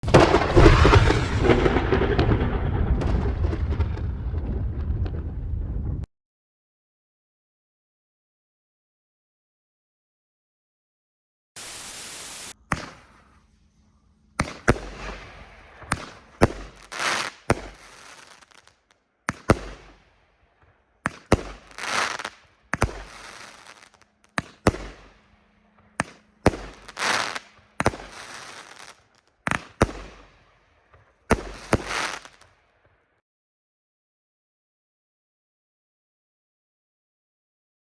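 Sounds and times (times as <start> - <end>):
fireworks shots bursting: 0.0 - 5.6, 11.6 - 32.6
fireworks crackle: 0.0 - 6.1, 11.6 - 20.2, 21.0 - 32.6
fireworks hissing: 11.6 - 20.0, 21.1 - 25.2, 26.0 - 30.3, 31.4 - 32.4.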